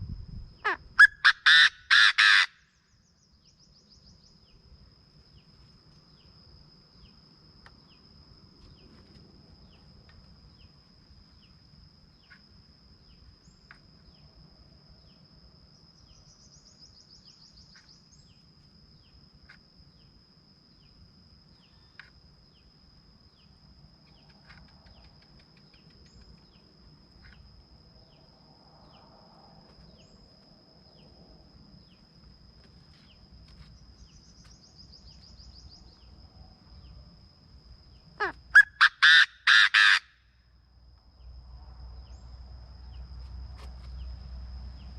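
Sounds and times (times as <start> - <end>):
faint rough bird calls: 0.6 - 3.0, 38.2 - 40.3.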